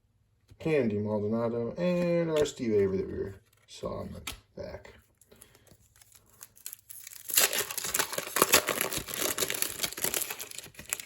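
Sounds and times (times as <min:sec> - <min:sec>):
wrapper being torn open: 0:05.9 - 0:11.0.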